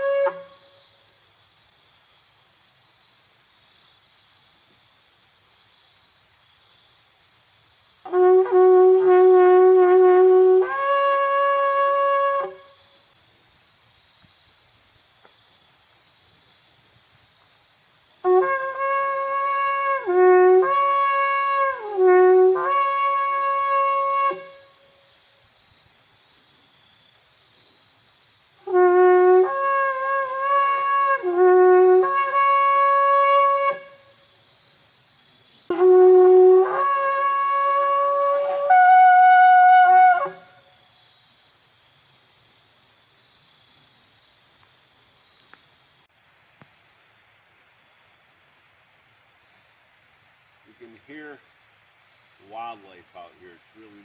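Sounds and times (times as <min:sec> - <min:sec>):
shofar blast: 0:00.0 - 0:00.8, 0:08.1 - 0:12.8, 0:18.2 - 0:25.0, 0:28.6 - 0:34.1, 0:35.7 - 0:40.7.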